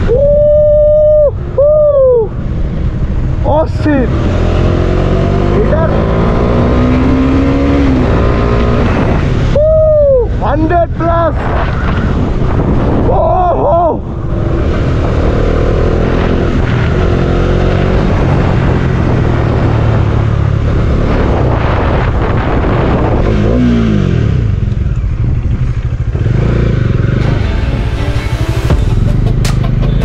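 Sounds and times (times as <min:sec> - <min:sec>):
motorcycle engine at speed: 0:02.3 - 0:09.6, 0:14.0 - 0:30.0.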